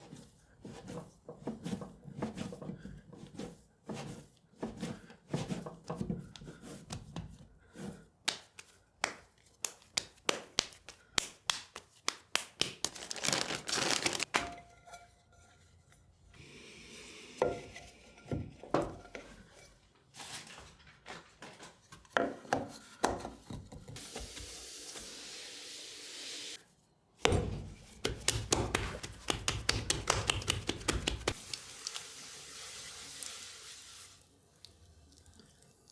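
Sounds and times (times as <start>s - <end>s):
clay and tools knocking and rubbing: 0.0s - 11.6s, 27.2s - 31.4s.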